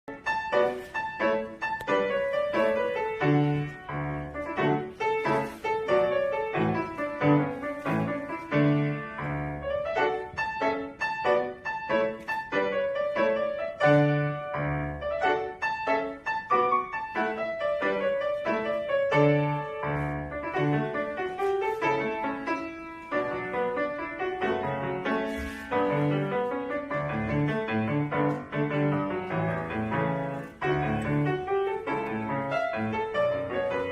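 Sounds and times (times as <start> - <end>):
solo piano piece: 0.0 - 33.9.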